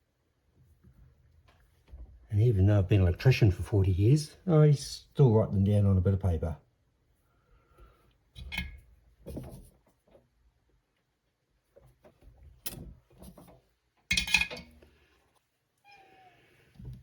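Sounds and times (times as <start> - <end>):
tools knocking and clicking on workbench: 12.7 - 14.7.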